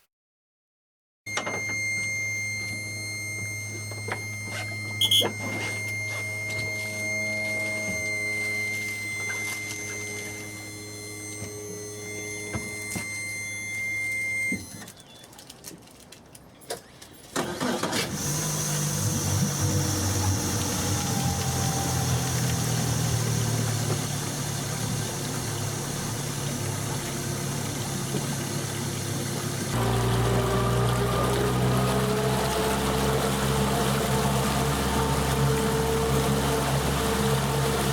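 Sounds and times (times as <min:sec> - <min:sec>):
outboard motor starting and idling: 0:01.3 - 0:15.2, 0:17.3 - 0:37.9
steady electronic tone: 0:01.4 - 0:14.7.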